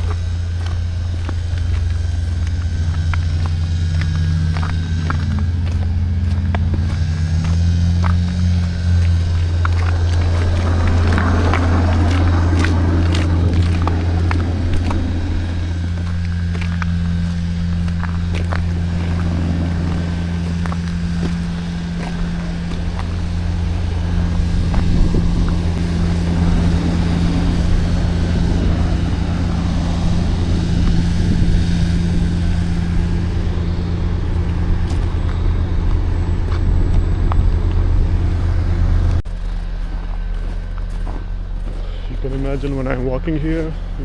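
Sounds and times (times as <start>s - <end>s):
street traffic noise: 0.0s - 44.0s
vehicle engine rumble: 0.0s - 44.0s.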